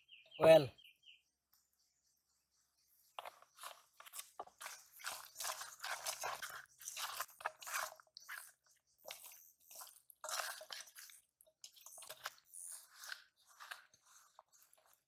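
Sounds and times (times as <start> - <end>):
hands squeezing fish in a bowl: 3.2 - 15.0.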